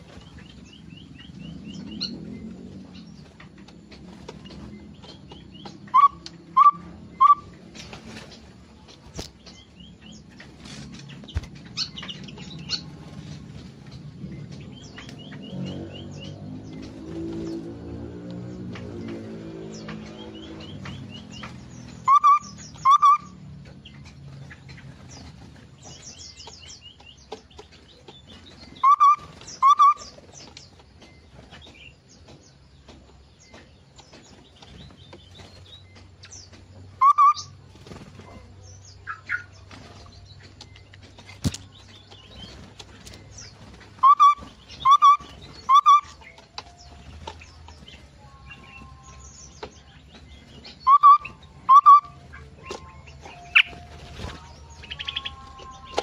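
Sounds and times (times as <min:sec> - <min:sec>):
faint high bird chirps: 0:20.0 - 0:24.6, 0:25.9 - 0:31.8, 0:33.4 - 0:56.0.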